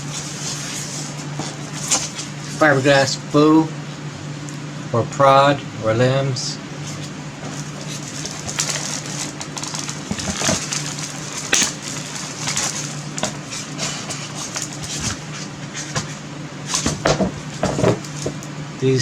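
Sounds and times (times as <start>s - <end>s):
steady low hum: 0.0s - 19.0s
plastic packaging rustling: 6.8s - 18.5s.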